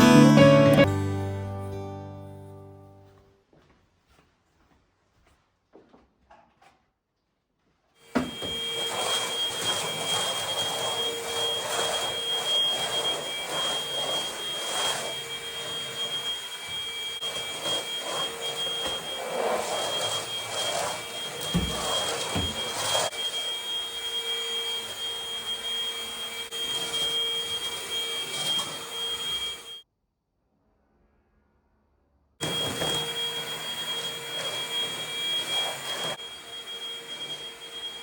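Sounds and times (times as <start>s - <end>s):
vacuum cleaner running: 0.0s - 1.8s, 8.0s - 29.8s, 32.4s - 38.0s.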